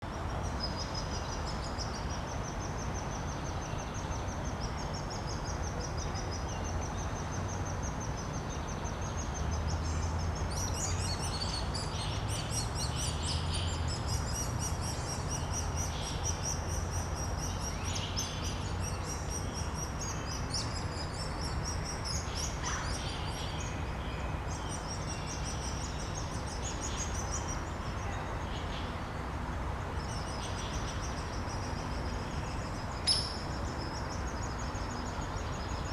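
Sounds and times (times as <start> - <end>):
nestlings begging with trilling calls: 32.6 - 35.9.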